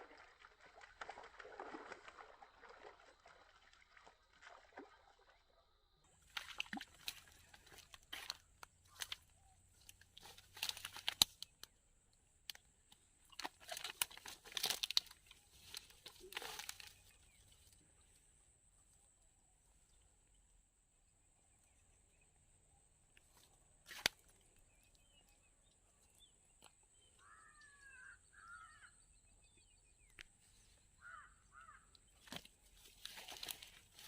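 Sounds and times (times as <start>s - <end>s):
crinkling and rustling: 6.2s - 11.7s, 13.2s - 17.8s, 32.2s - 34.0s.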